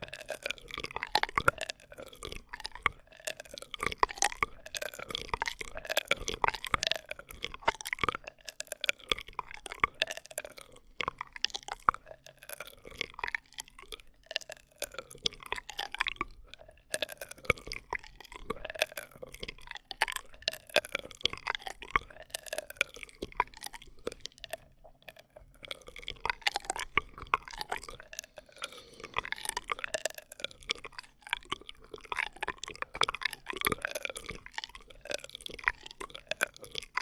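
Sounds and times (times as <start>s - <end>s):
wet mouth clicks: 21.1s - 37.0s.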